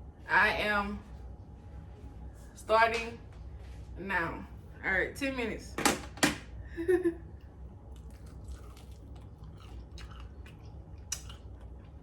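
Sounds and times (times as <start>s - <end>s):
person chewing chicken wing: 7.9s - 12.0s
wet mouth clicks and smacks: 8.0s - 11.7s.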